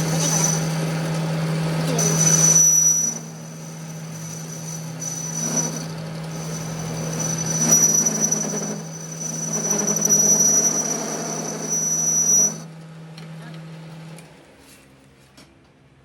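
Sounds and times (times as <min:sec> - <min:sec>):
high squeal: 0:00.0 - 0:12.7
workshop machine hum: 0:00.0 - 0:16.0.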